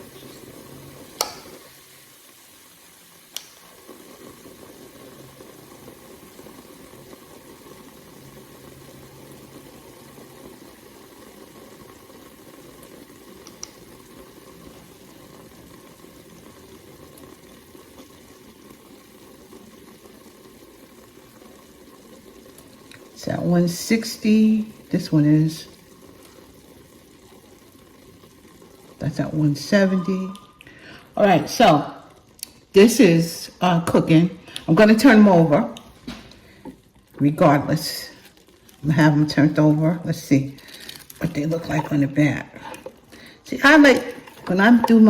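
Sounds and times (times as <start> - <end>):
bubbling sizzle of cooking meat: 0.0 - 45.0.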